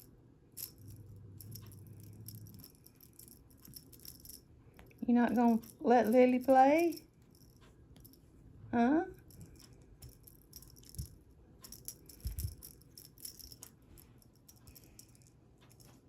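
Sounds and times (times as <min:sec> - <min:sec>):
cat toy rattling: 0:00.6 - 0:08.2, 0:09.2 - 0:16.0
soft low thumps: 0:12.1 - 0:12.8.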